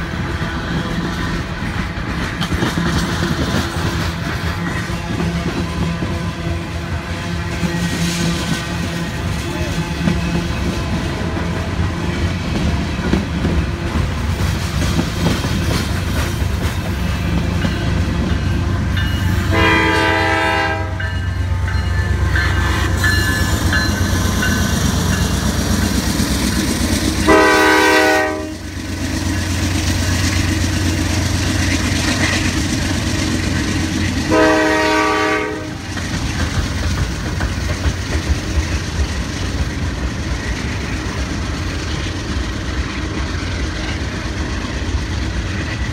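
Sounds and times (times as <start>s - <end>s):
freight train rumble and clatter: 0.0s - 45.9s
locomotive air horn blasts: 19.4s - 21.7s, 27.2s - 28.7s, 34.3s - 35.8s.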